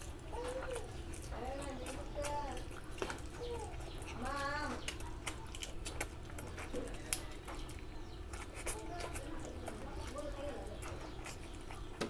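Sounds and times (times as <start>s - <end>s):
chewing with wet mouth clicks: 0.0s - 12.0s.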